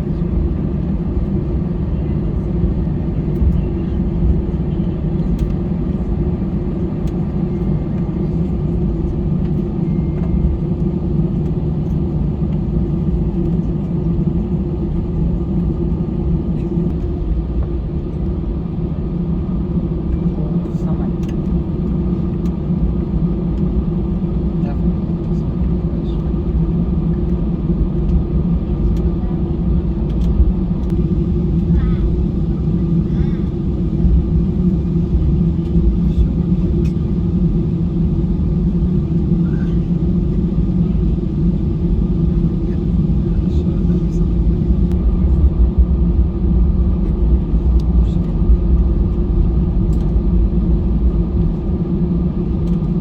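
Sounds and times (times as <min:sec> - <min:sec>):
airliner cabin rumble: 0:00.0 - 0:53.0.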